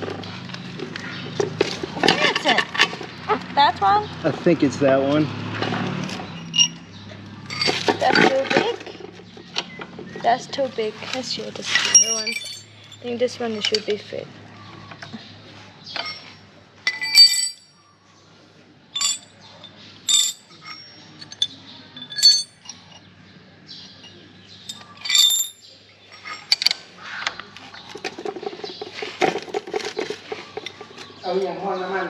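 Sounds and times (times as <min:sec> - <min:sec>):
metal sockets clinking: 0:06.1 - 0:09.9, 0:11.1 - 0:14.0, 0:15.9 - 0:17.7, 0:19.0 - 0:23.1, 0:23.8 - 0:26.8.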